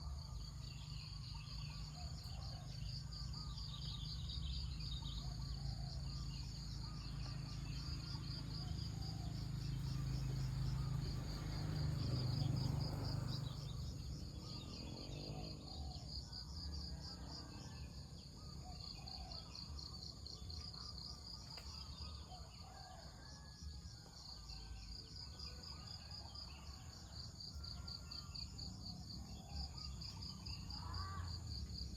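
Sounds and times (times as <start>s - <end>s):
insect chorus: 0.0s - 31.9s.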